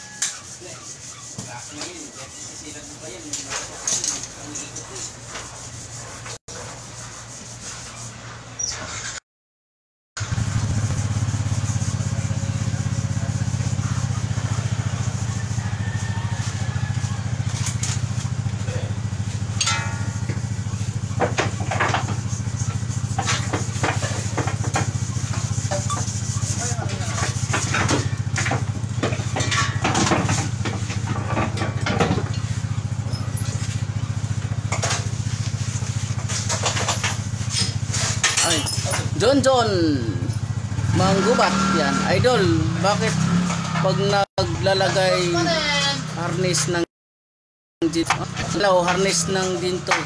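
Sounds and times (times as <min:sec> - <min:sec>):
engine idling: 0:10.2 - 0:43.1
person speaking: 0:38.4 - 0:43.0.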